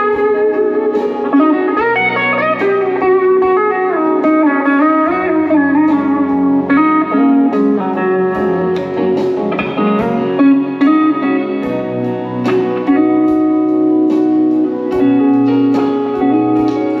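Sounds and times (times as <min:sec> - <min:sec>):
slow blues guitar: 0:00.0 - 0:17.0.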